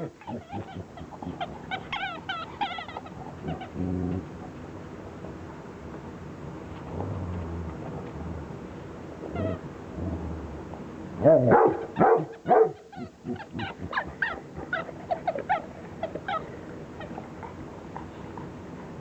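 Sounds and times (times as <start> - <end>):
dog whining and yipping: 0.2 - 3.7, 9.3 - 9.6, 12.0 - 17.2.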